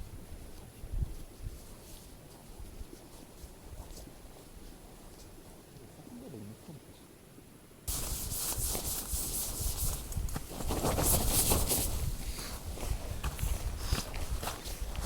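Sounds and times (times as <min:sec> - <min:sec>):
rubbing and scraping: 0:07.9 - 0:12.1.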